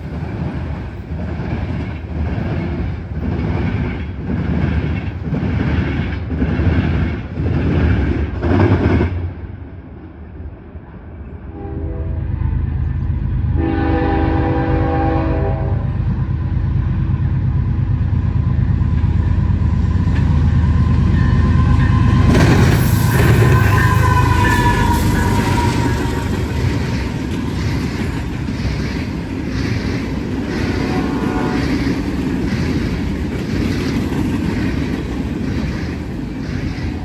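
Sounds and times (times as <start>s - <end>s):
railroad cars clattering: 0.0s - 37.0s
train horn blasts: 11.5s - 12.4s, 13.5s - 16.0s, 21.1s - 27.2s, 30.7s - 31.9s
locomotive low rumble: 11.9s - 34.4s.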